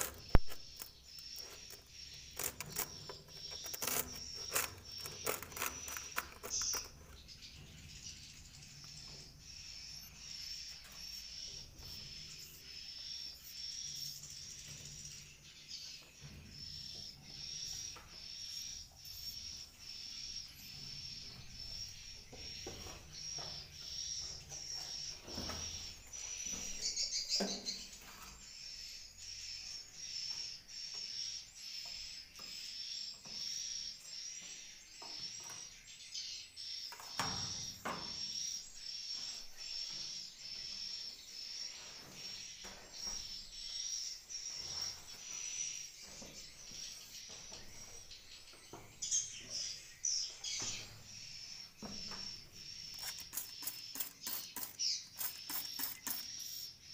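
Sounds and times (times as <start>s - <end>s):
swiftlet chirps: 52.9s - 56.7s.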